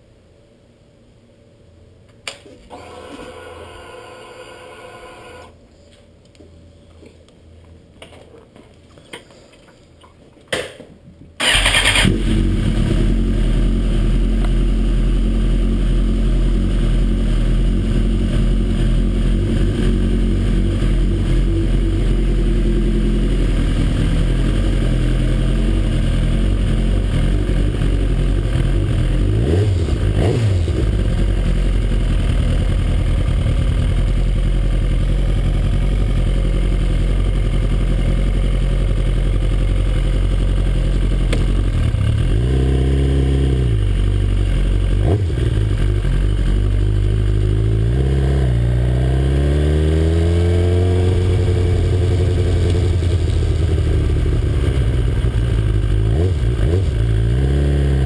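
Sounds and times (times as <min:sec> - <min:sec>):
motorcycle engine idling: 0:11.4 - 0:48.0, 0:50.6 - 0:57.4.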